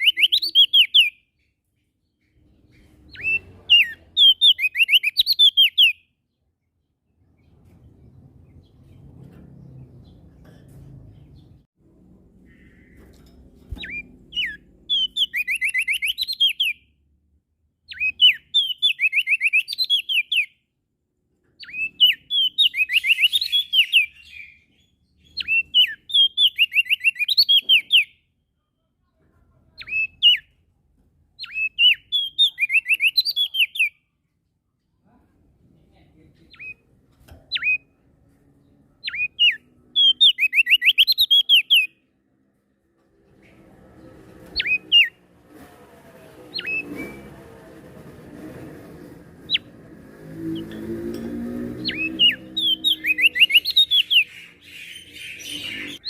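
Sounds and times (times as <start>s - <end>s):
songbird whistling song: 0.0s - 6.2s, 13.7s - 17.0s, 17.8s - 20.6s, 21.6s - 28.2s, 29.8s - 30.6s, 31.4s - 34.1s, 37.5s - 37.9s, 39.0s - 42.0s, 44.5s - 45.2s, 46.5s - 47.3s, 51.7s - 56.0s.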